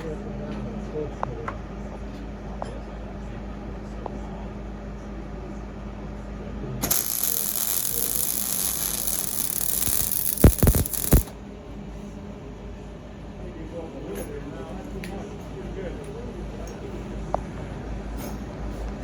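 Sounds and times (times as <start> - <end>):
welder arc hissing: 6.8 - 11.3
welder arc popping: 6.8 - 11.3.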